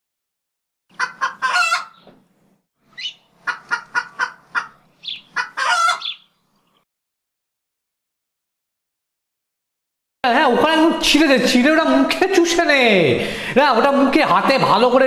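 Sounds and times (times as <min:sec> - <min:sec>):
chicken clucking: 0:00.9 - 0:02.2, 0:03.0 - 0:06.3
chicken squawking: 0:00.9 - 0:02.2, 0:02.9 - 0:06.4.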